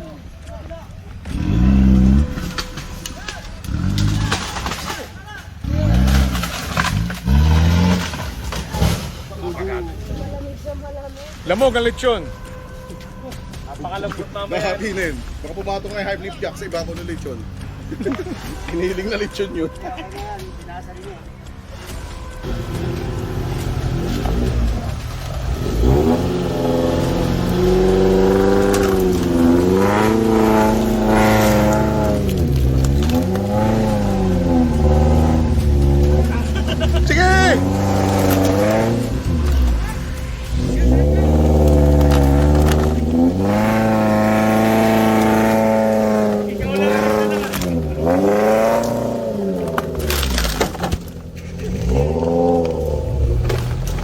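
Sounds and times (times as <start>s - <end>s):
off-road vehicle engine revving: 1.0s - 54.0s
sharp knocks and cracks: 2.4s - 5.2s, 5.8s - 9.2s.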